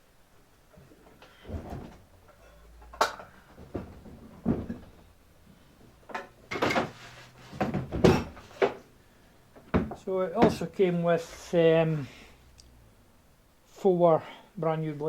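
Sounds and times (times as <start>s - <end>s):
workshop equipment thudding: 1.4s - 5.2s, 6.0s - 8.8s.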